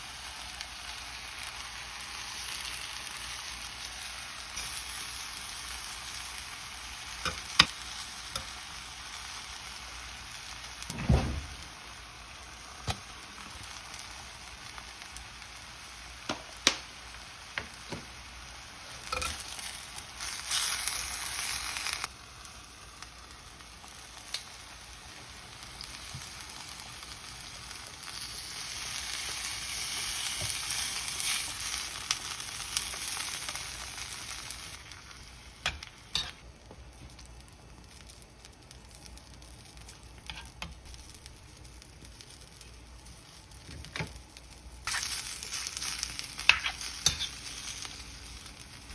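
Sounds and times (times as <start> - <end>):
food sizzling in a frying pan: 0.0 - 48.9
low thump: 10.9 - 11.6.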